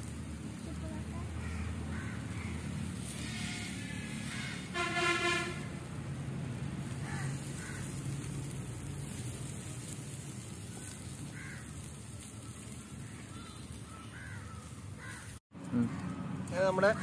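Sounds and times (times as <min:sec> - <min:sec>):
crows cawing faintly: 0:01.2 - 0:05.2, 0:06.9 - 0:08.3, 0:10.6 - 0:16.2.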